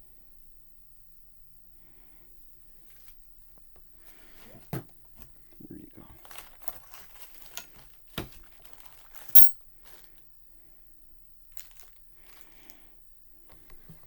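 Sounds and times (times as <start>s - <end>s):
tools handling noise: 8.6s - 9.6s
sharp click: 9.4s - 9.6s.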